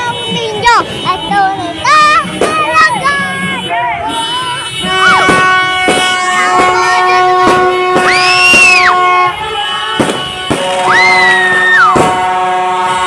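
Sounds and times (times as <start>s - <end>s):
fireworks banging: 0.0s - 3.6s, 4.7s - 13.0s
firework whistling: 4.9s - 9.2s, 9.9s - 13.0s.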